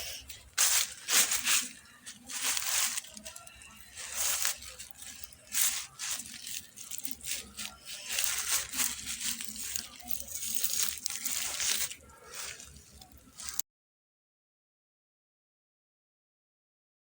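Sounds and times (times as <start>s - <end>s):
rustling and crinkling: 0.0s - 13.6s.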